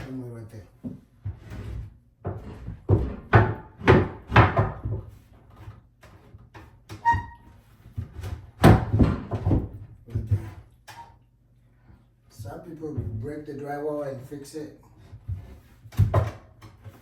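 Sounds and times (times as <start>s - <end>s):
wooden knocks and thuds: 0.8s - 10.6s, 15.1s - 17.0s.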